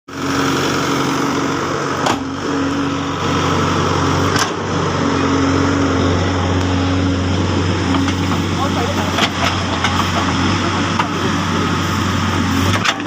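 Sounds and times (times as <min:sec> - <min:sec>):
diesel engine running: 0:00.1 - 0:13.0.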